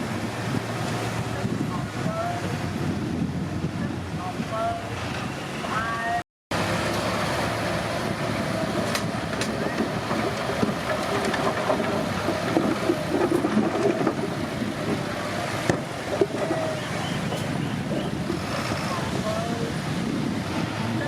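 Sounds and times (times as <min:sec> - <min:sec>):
bulldozer diesel engine drone: 0:00.0 - 0:21.0
steel tracks clanking: 0:08.1 - 0:18.4.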